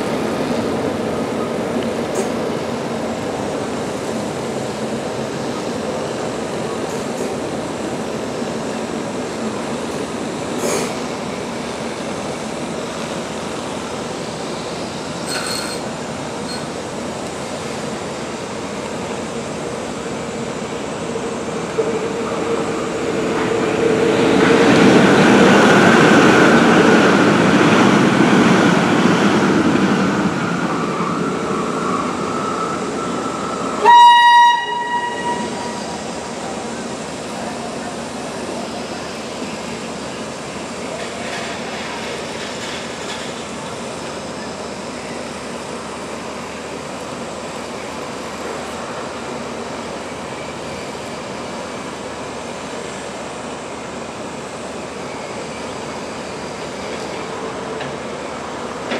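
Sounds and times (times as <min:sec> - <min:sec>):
train rumbling on rails: 0:00.0 - 0:58.9
wheel squeal: 0:15.2 - 0:15.9.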